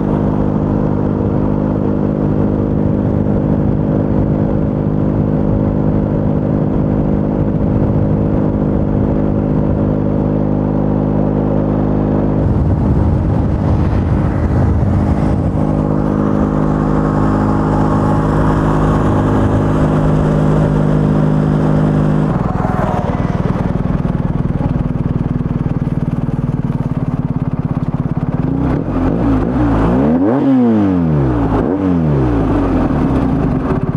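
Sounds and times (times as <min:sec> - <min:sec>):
motorcycle engine: 0:00.0 - 0:33.9
vehicle passing by: 0:11.4 - 0:26.0.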